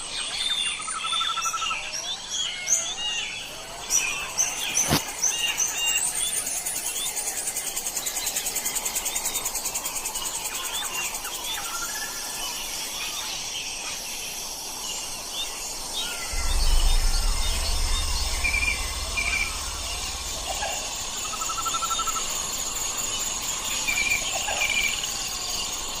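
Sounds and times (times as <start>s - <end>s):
insects trilling: 0.9s - 26.0s
low rumble: 16.3s - 22.5s.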